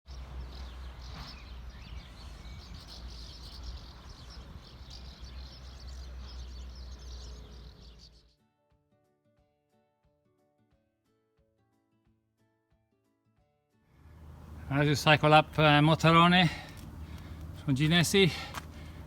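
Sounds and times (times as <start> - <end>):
birds chirping: 0.2 - 8.3, 14.2 - 19.0
steady low rumble: 14.2 - 19.0.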